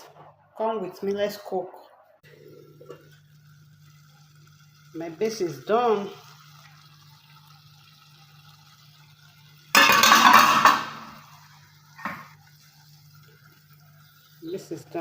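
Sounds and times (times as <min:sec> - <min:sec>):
cookware clattering and scraping: 0:09.8 - 0:11.2.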